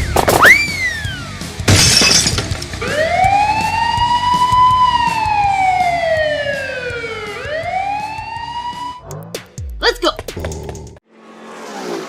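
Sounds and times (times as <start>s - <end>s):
wailing siren: 2.8s - 9.3s.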